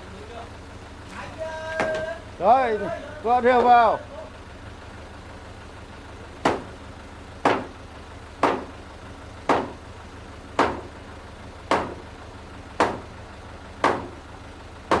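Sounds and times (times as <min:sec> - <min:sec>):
low engine hum: 0:00.0 - 0:15.0
hammer striking timber: 0:01.8 - 0:02.2, 0:06.4 - 0:06.8, 0:07.4 - 0:07.8, 0:08.4 - 0:08.8, 0:09.5 - 0:09.8, 0:10.6 - 0:11.0, 0:11.7 - 0:12.1, 0:12.8 - 0:13.2, 0:13.8 - 0:14.2.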